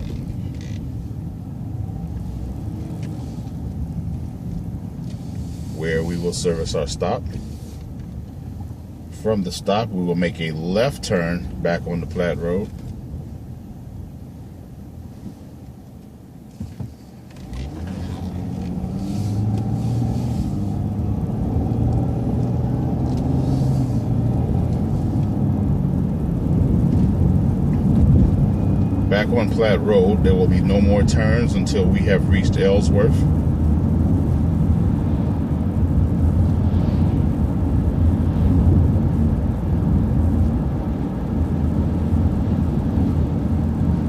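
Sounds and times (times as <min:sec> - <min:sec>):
bus engine and road rumble: 0:00.0 - 0:44.0
bus engine accelerating: 0:17.5 - 0:29.3.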